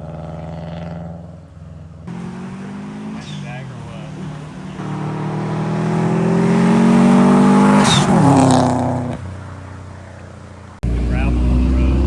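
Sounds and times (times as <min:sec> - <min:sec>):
car engine accelerating hard: 0:02.0 - 0:09.6, 0:10.8 - 0:12.0.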